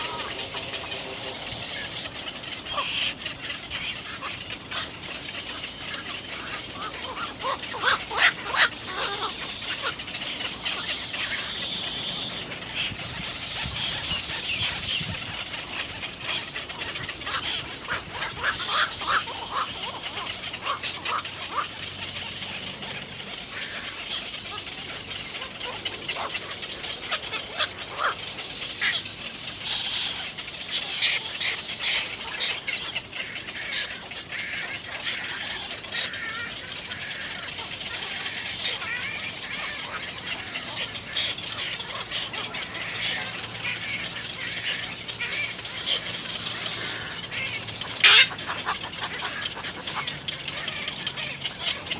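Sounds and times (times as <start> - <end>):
birds chirping: 0.0 - 51.9.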